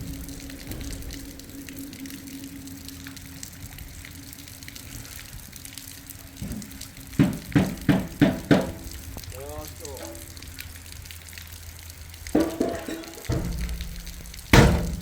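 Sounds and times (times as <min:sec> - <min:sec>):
faint steady hum: 0:00.0 - 0:15.0
water gushing: 0:00.0 - 0:15.0
sharp knocks: 0:07.2 - 0:08.8, 0:12.4 - 0:15.0.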